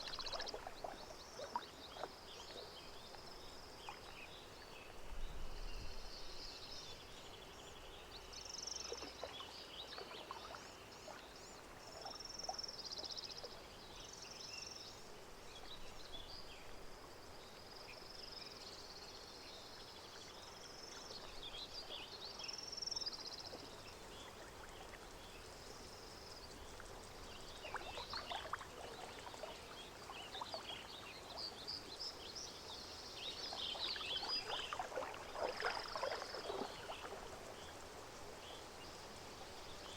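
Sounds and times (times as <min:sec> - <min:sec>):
water lapping and splashing: 0:00.0 - 0:04.7, 0:08.7 - 0:13.8, 0:23.5 - 0:39.9.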